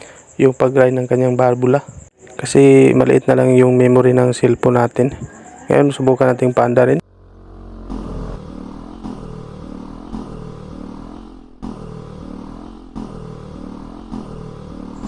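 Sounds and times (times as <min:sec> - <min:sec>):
motorcycle engine idling: 0:07.0 - 0:15.0.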